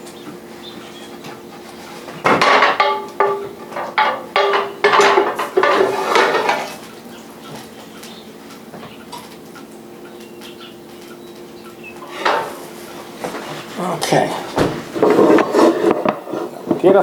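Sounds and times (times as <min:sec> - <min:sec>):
metal utensil scraping metal pan: 0:02.4 - 0:06.8.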